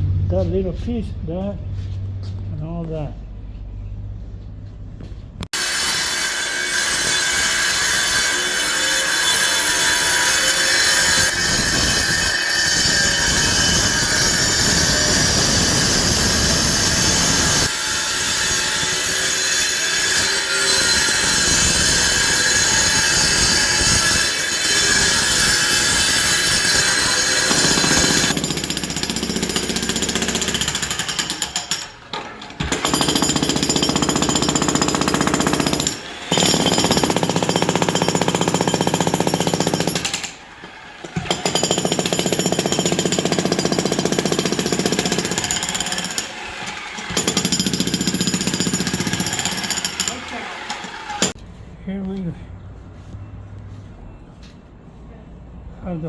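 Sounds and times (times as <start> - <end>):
jackhammer pounding concrete: 21.1 - 31.9, 32.6 - 40.4, 41.1 - 51.4.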